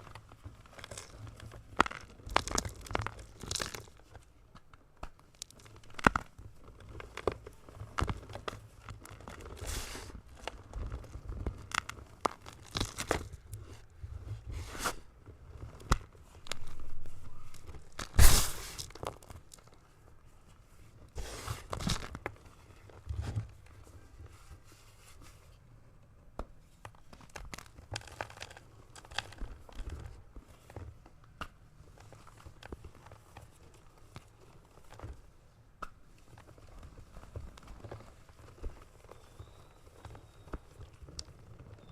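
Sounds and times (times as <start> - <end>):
chalk block crunching and crumbling: 0.0 - 13.9.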